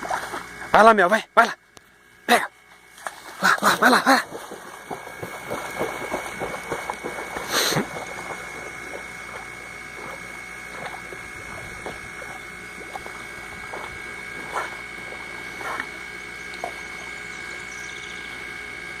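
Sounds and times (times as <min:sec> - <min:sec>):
dog splashing in water: 0:03.0 - 0:17.1.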